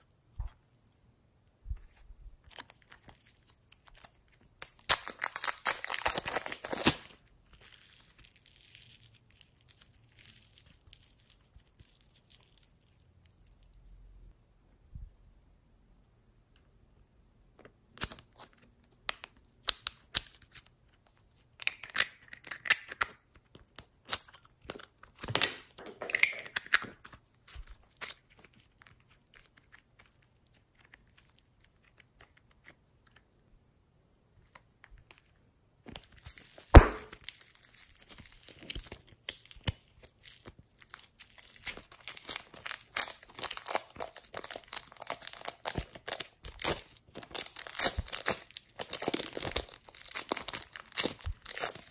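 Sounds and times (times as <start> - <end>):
slime crackling and tearing: 2.5 - 13.8, 26.8 - 33.2, 35.8 - 51.9.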